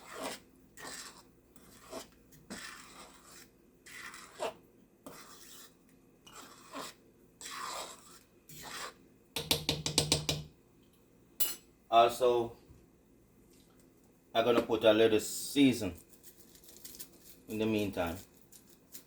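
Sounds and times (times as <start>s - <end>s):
spoon scraping a pot: 0.0s - 9.5s.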